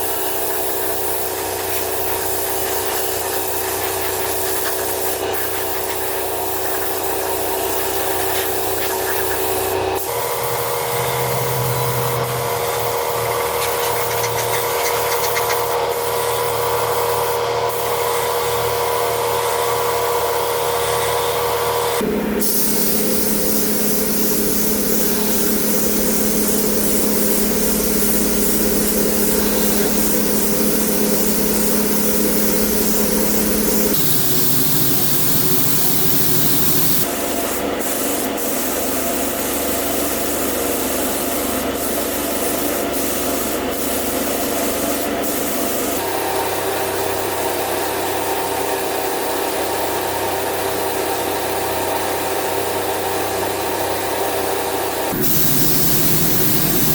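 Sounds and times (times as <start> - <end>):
power sander motor hum: 0.0 - 37.8, 55.1 - 56.9.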